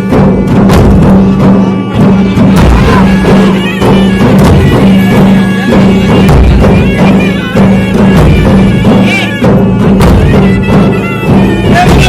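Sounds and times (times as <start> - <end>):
drums beaten hard: 0.0 - 12.0.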